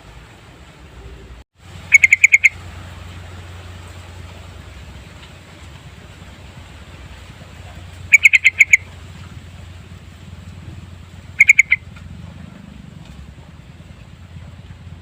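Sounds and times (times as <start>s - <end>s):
bulbul rapid chattering: 1.9s - 2.6s, 7.6s - 8.9s, 11.3s - 11.9s.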